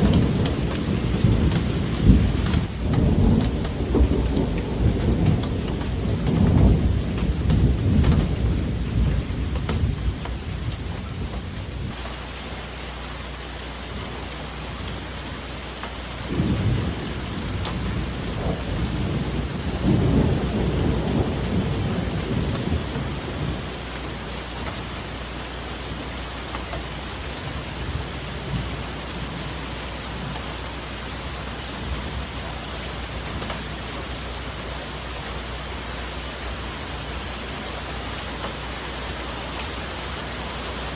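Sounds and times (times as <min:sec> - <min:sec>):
deep thunder rumbling: 0:00.0 - 0:12.0, 0:16.2 - 0:25.2, 0:27.1 - 0:35.5
rain on foliage: 0:00.0 - 0:40.9.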